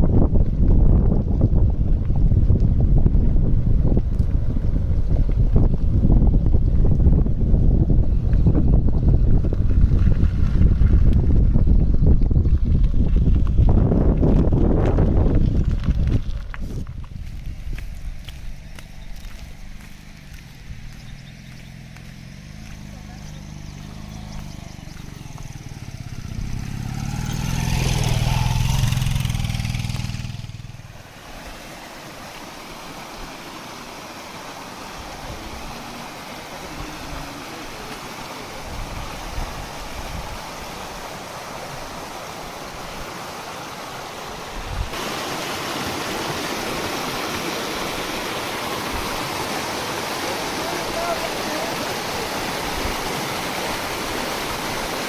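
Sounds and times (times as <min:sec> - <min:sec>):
flowing water rushing: 0:17.3 - 0:55.0
vehicle engine: 0:18.2 - 0:31.9.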